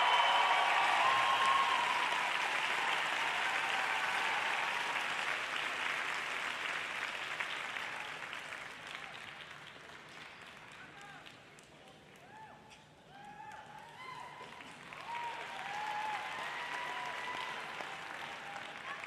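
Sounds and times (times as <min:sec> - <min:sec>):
audience applauding: 0:00.0 - 0:11.7, 0:13.4 - 0:19.0.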